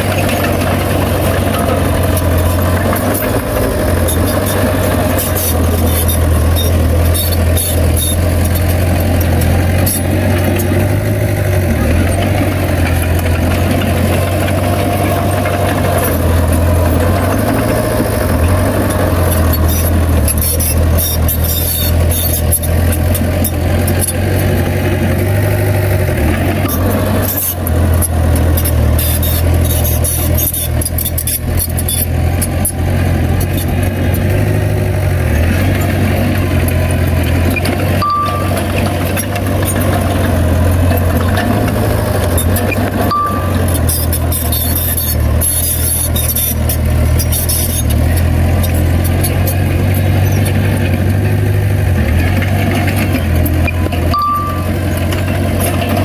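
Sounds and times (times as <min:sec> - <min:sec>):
heavy diesel engine running: 0:00.0 - 0:56.0
metallic clanks and rattles: 0:00.0 - 0:56.0
short high beeps: 0:38.0 - 0:38.9, 0:43.0 - 0:46.5, 0:53.7 - 0:54.9.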